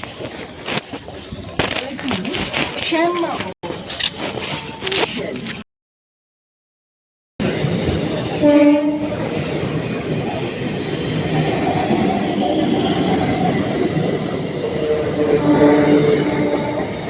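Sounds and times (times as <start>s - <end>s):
train wheels rumbling on track: 7.4s - 17.0s
train horn blast: 8.4s - 9.2s, 14.9s - 17.0s.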